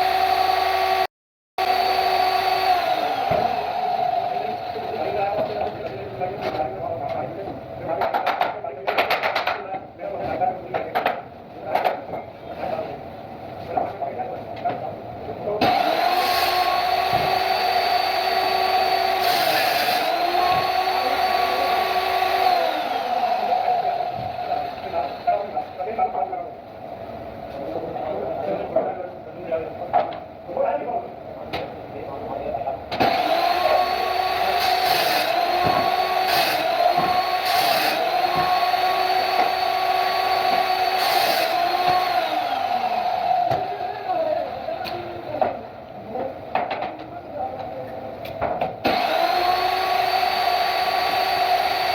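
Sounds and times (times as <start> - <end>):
power tool motor whining: 0.0 - 5.9, 15.6 - 25.6, 33.0 - 45.5, 48.8 - 51.9.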